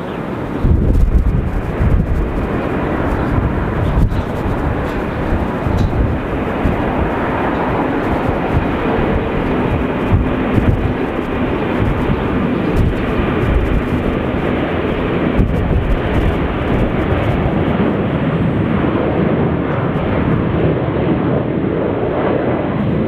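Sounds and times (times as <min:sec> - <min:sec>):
jet engines roaring at takeoff: 0:00.0 - 0:23.0.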